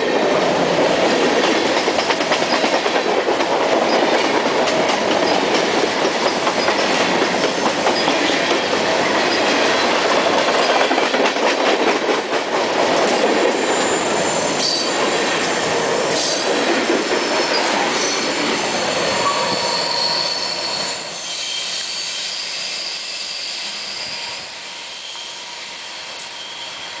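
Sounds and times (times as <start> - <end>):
rumbling train wheels: 0.0 - 27.0
high-pitched wheel squeal: 17.5 - 27.0.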